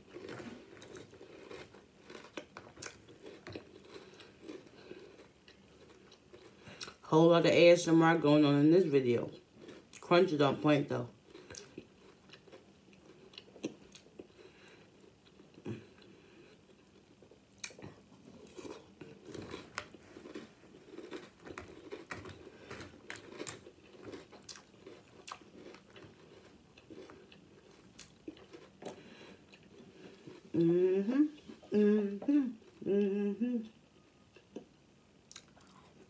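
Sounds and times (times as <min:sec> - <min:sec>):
crunchy cereal chewing: 0:00.0 - 0:07.0, 0:09.3 - 0:10.1, 0:11.2 - 0:30.6.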